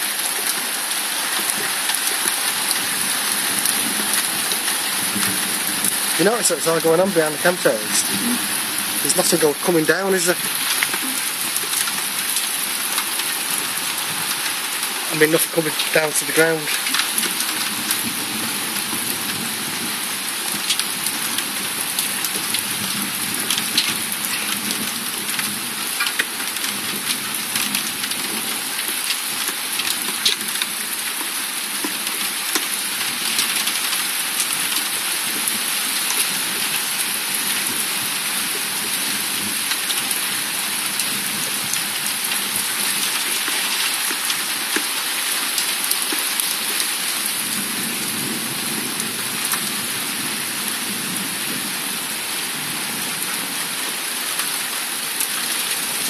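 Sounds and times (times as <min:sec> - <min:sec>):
heavy rain hissing: 0:00.0 - 0:31.0
raindrops ticking close by: 0:00.0 - 0:56.0.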